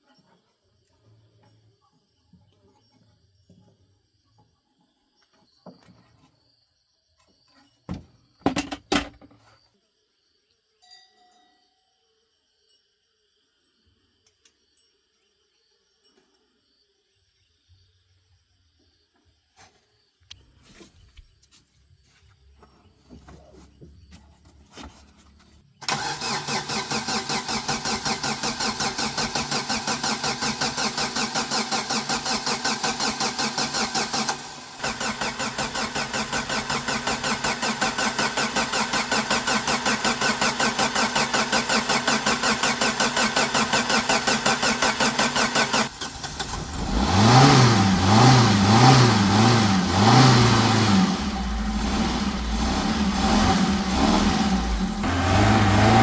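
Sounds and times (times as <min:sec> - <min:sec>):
car engine cranking: 0:25.8 - 0:56.0
car engine revving and idling: 0:25.9 - 0:56.0.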